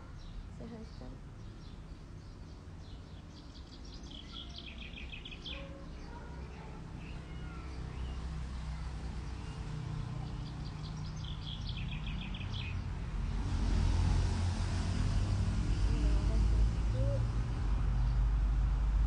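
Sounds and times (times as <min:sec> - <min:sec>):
bird chirping: 0:00.0 - 0:13.4
low outdoor rumble: 0:02.6 - 0:19.0.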